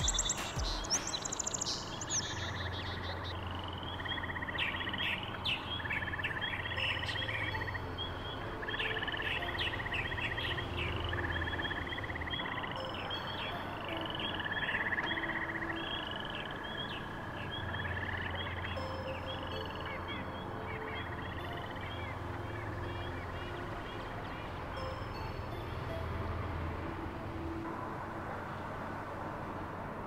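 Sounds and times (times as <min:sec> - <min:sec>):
high bird chirps: 0:00.0 - 0:22.2
buzzy bird trills: 0:00.0 - 0:25.5.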